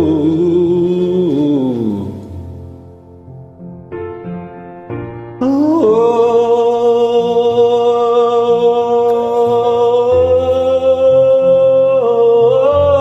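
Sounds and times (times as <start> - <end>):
soft backing track: 0.0 - 13.0
man singing a held note: 5.4 - 13.0.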